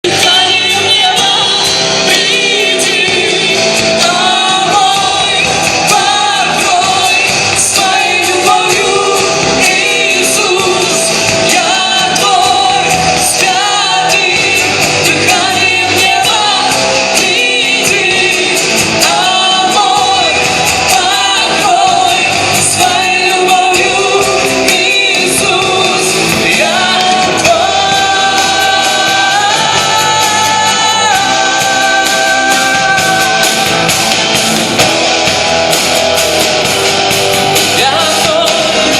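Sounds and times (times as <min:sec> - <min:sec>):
band playing worship music: 0:00.0 - 0:38.9
people singing: 0:00.0 - 0:38.9.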